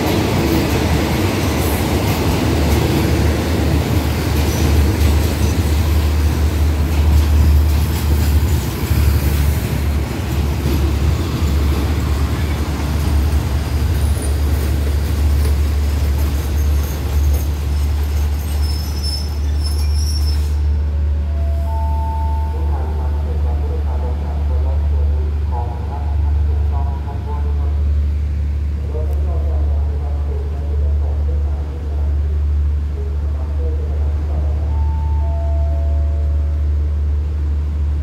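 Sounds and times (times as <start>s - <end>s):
train coaches rumbling: 0.0s - 38.0s
faint wheel squeals: 17.7s - 20.7s.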